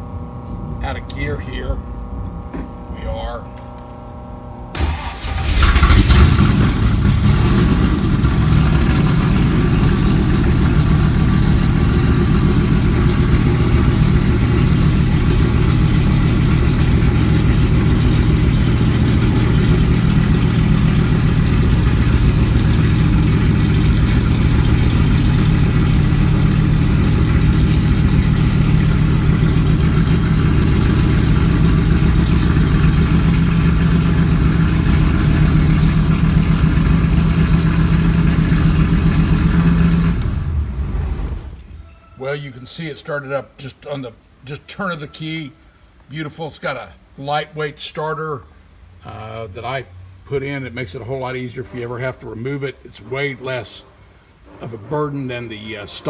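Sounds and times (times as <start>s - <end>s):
car engine starting and idling: 4.7s - 41.8s.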